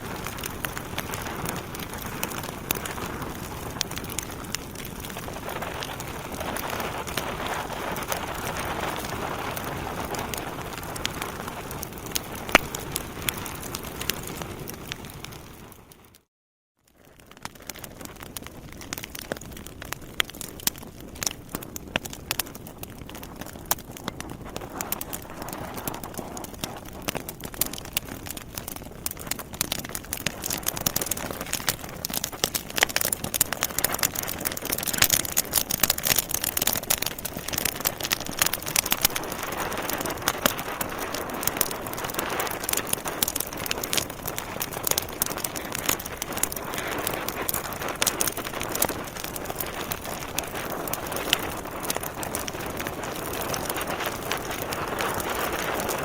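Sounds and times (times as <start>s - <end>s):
logs crackling and popping: 0.0s - 16.3s, 16.9s - 56.0s
rush of flame: 17.7s - 56.0s.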